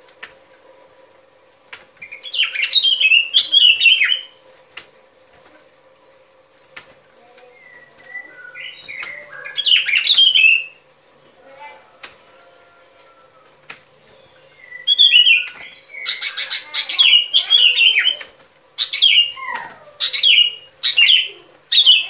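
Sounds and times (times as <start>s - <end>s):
faint steady hum: 0.0s - 22.0s
bird warbling call: 14.4s - 22.0s.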